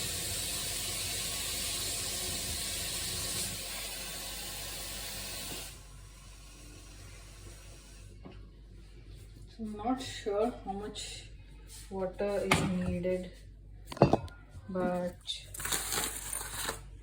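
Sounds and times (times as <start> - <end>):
water running from a tap: 0.0 - 8.1.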